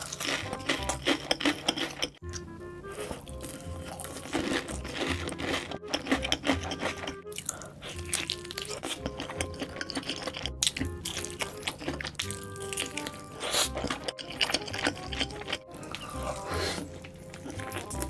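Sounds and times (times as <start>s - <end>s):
wet chewing: 0.0s - 2.2s, 2.9s - 18.0s
crunchy bites: 3.1s - 18.0s.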